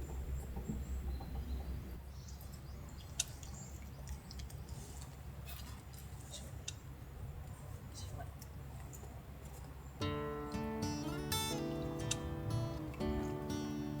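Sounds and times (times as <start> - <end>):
sharp click: 12.0 - 12.3.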